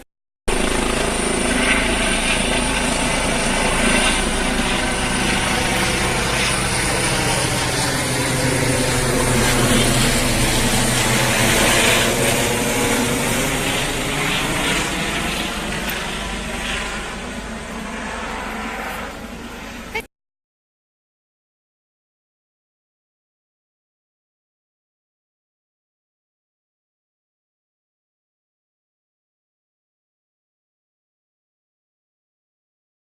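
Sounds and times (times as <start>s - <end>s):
helicopter rotor and turbine: 0.5s - 20.1s.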